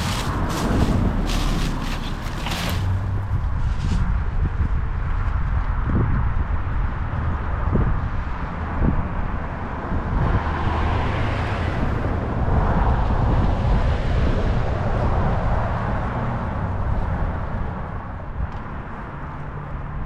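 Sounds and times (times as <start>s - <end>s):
vehicle passing: 0.0s - 4.0s.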